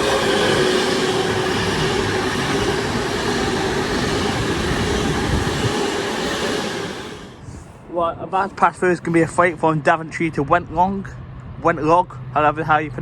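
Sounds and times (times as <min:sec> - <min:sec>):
electric train passing: 0:00.0 - 0:08.0.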